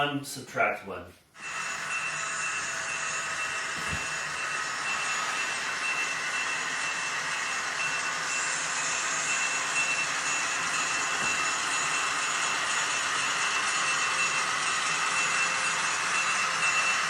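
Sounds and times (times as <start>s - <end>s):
model train motor whine: 1.4s - 17.0s.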